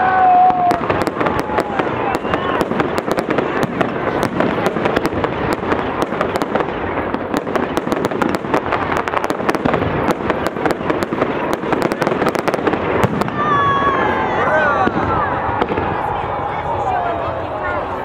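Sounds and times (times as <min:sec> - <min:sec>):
fireworks crackling pops: 0:00.0 - 0:14.1.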